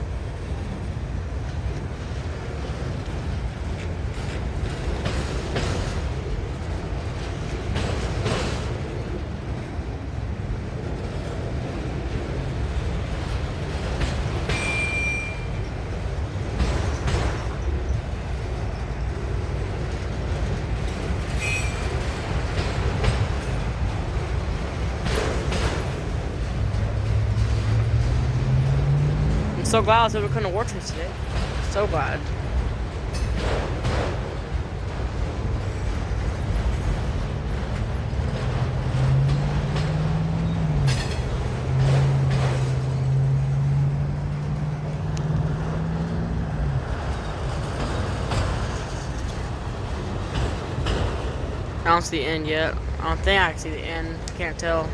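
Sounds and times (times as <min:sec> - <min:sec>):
freight train rumbling past: 0:00.0 - 0:54.9
wheels clacking over rail joint: 0:00.3 - 0:53.0
high wheel squeals: 0:14.4 - 0:15.8, 0:21.3 - 0:22.2, 0:38.6 - 0:46.1.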